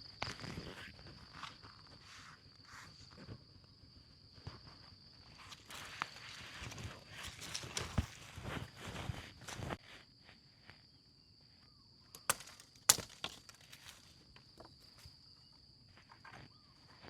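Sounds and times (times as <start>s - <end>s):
footsteps or snaps on ground: 5.4s - 10.0s.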